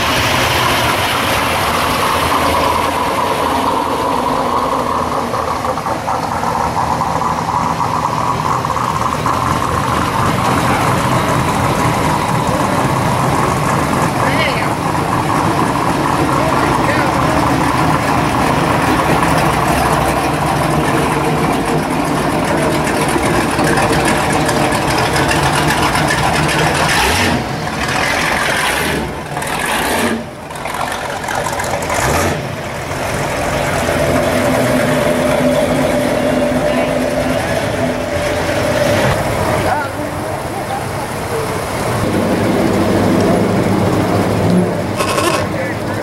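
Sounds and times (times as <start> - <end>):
car engines cruising past: 0.0 - 46.0
crowd chatter: 5.0 - 28.1, 33.6 - 46.0.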